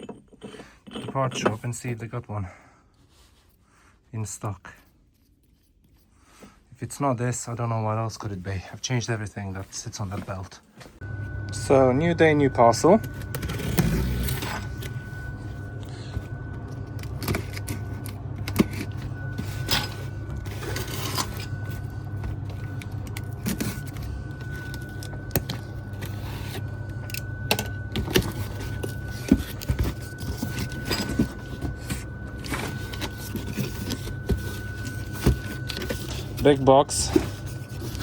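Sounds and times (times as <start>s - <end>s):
steady low hum: 0.1s - 38.0s
cardboard parcel rustling: 12.6s - 38.0s.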